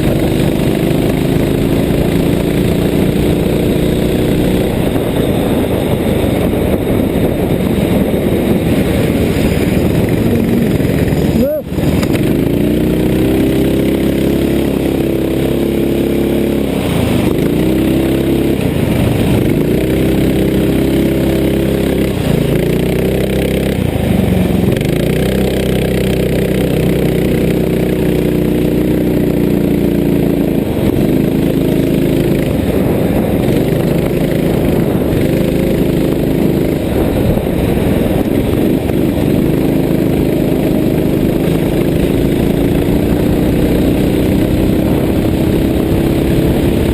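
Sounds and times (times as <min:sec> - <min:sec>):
vehicle engine running: 0:00.0 - 0:46.9.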